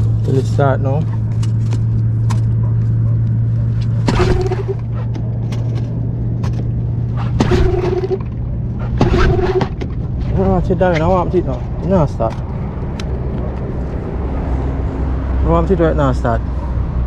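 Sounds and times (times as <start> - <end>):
outboard motor running: 4.0 - 5.8, 6.4 - 10.7.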